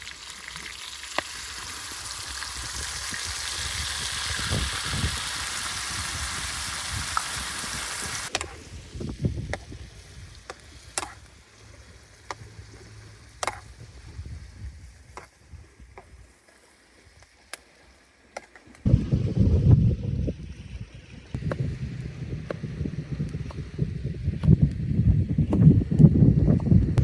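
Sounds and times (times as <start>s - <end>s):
food sizzling in a pan: 0.0s - 8.4s, 9.2s - 18.0s.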